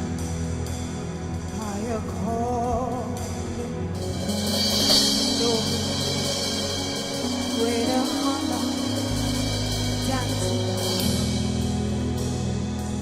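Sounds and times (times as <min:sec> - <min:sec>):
gospel band playing: 0:00.0 - 0:13.0
cymbal swell: 0:04.0 - 0:13.0.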